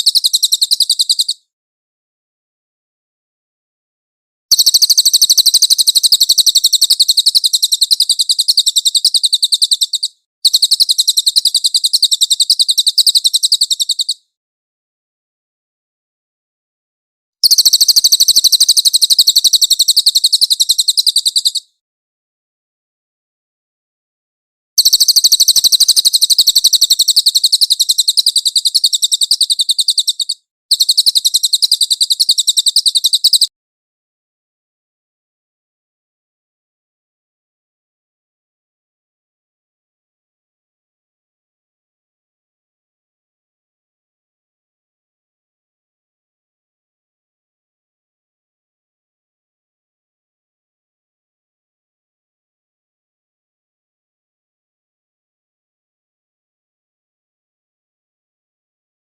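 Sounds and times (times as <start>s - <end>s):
bird singing rapid trills: 0.0s - 1.5s, 4.5s - 14.2s, 17.4s - 21.7s, 24.8s - 33.5s.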